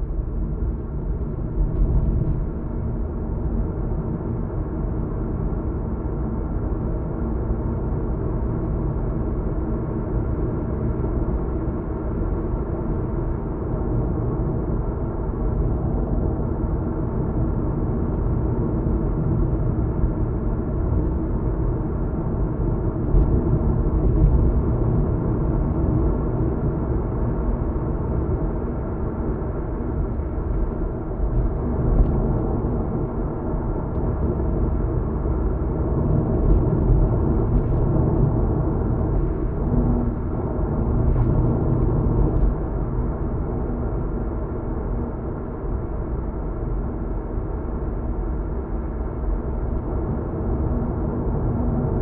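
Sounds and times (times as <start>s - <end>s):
road and engine rumble in car: 0.0s - 52.0s.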